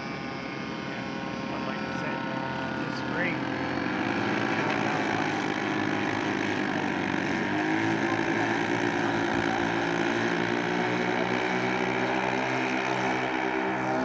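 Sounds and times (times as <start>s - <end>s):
model airplane engine droning: 0.0s - 14.0s.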